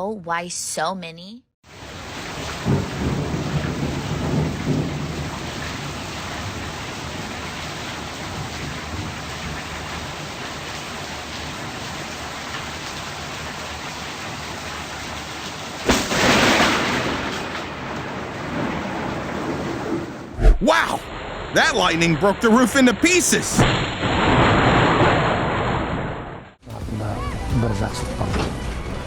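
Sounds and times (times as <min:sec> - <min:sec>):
steady rain: 0:01.7 - 0:21.0, 0:21.6 - 0:23.4.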